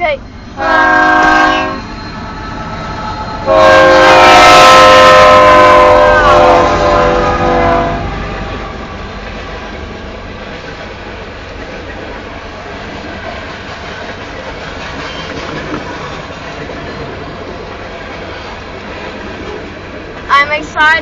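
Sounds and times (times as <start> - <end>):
rolling clatter of train cars: 0.0 - 21.0
locomotive air horn: 0.6 - 1.9, 3.4 - 9.0.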